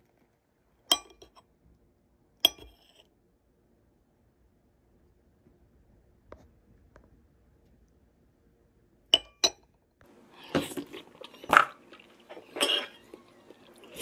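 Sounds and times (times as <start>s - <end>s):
metal spoon clinking on cup: 0.9s - 1.4s, 2.5s - 3.0s, 9.2s - 9.6s
spoon scraping and scooping: 0.9s - 1.4s, 2.4s - 3.1s, 10.3s - 14.0s.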